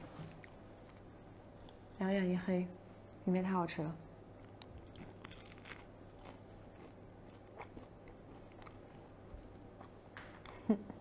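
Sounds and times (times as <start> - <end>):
steady low hum: 0.0 - 11.0
chewing crisp bread crunches: 4.4 - 10.7.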